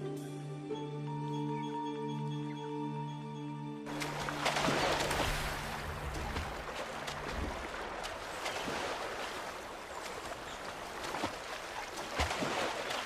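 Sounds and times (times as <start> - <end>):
river water rushing: 3.9 - 13.0
small water splashes: 3.9 - 13.0.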